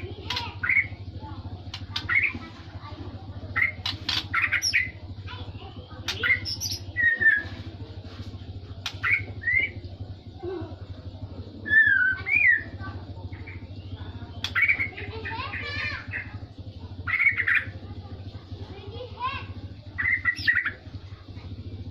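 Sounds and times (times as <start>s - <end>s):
steady low hum: 0.0s - 21.9s
songbird whistling and chirping: 6.1s - 7.6s, 8.8s - 9.8s, 11.6s - 16.3s, 17.0s - 17.7s, 20.0s - 20.8s.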